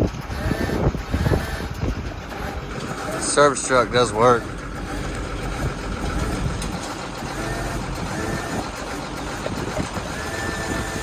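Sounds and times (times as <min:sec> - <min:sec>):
crane whining: 0:00.0 - 0:11.0
truck engine running: 0:00.0 - 0:11.0.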